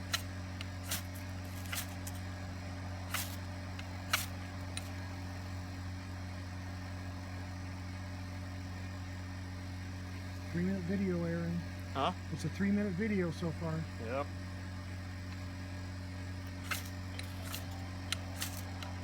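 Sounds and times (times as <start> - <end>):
ferro rod scraping: 0.0 - 2.2, 3.1 - 4.9, 16.5 - 19.0
steady low hum: 0.0 - 19.0.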